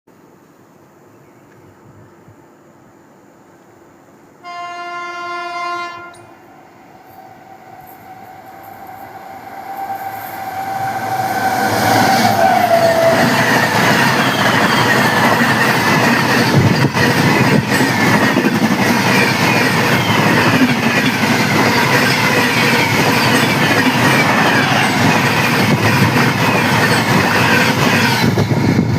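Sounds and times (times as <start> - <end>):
train horn blast: 4.4 - 6.3
train wheels clattering over rail joints: 12.9 - 28.6.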